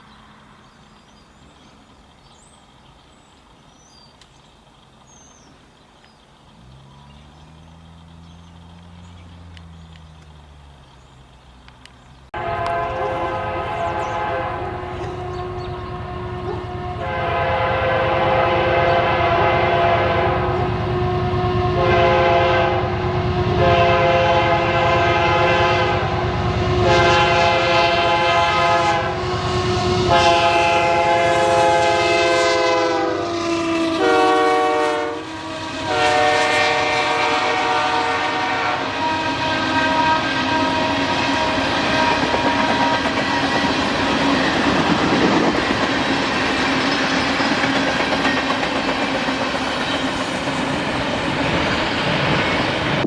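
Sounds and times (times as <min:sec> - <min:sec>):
passing train rumble: 0:00.0 - 0:53.0
locomotive air horn blasts: 0:12.4 - 0:43.5.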